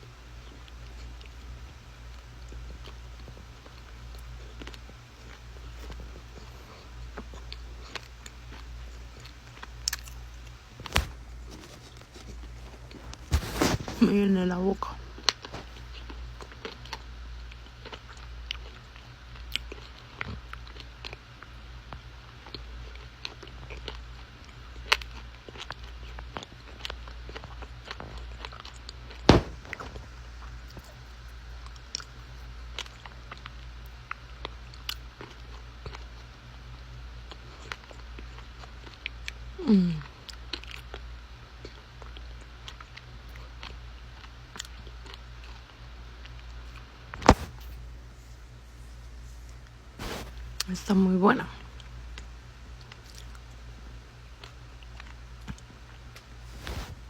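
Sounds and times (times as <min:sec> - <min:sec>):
chewing with crunches: 0:00.2 - 0:50.8, 0:51.6 - 0:57.0
clay being chewed: 0:02.1 - 0:14.0.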